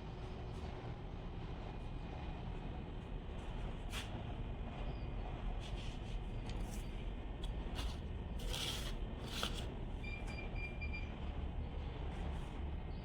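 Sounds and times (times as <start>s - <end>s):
scraping sound: 7.8s - 9.7s.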